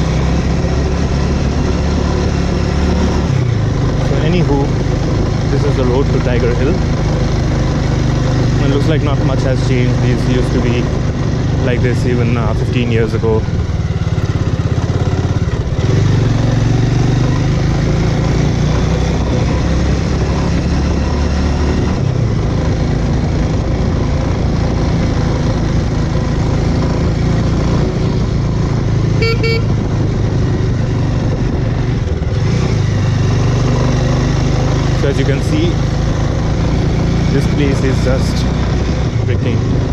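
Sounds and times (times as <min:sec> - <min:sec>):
motorcycle engine running: 0:00.0 - 0:39.9
short horn toot: 0:29.2 - 0:29.8.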